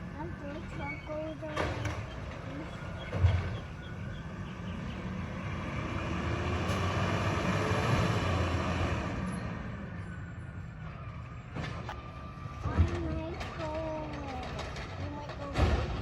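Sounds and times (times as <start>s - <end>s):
truck engine rumbling: 0.0s - 16.0s.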